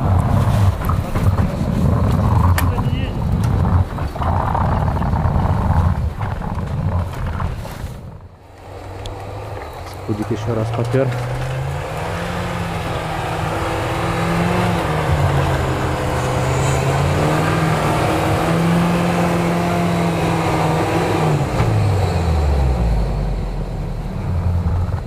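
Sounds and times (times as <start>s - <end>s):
car engine revving hard: 8.6s - 25.0s.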